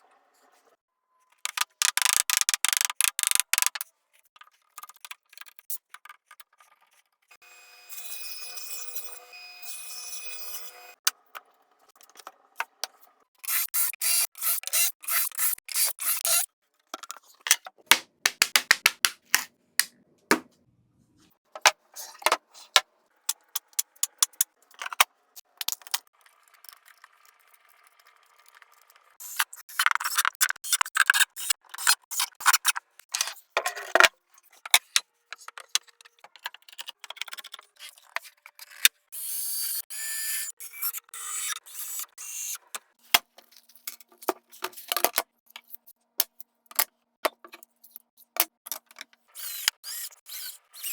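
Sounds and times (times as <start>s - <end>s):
woodworking clicks taps and scrapes: 1.5s - 3.9s.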